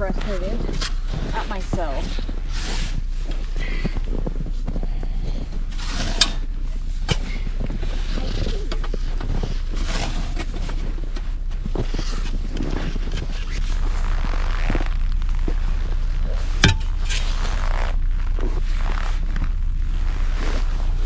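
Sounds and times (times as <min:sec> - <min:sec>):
low rumble: 0:00.0 - 0:21.0
snow shovel scraping snow: 0:00.3 - 0:03.8, 0:05.7 - 0:08.6, 0:09.3 - 0:11.0, 0:11.7 - 0:14.8, 0:16.3 - 0:18.0
sharp knocks: 0:16.6 - 0:17.0.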